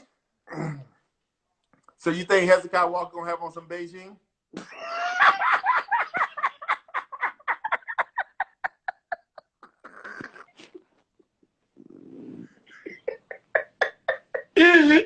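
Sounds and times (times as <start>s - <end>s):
man laughing hard: 4.6s - 10.4s.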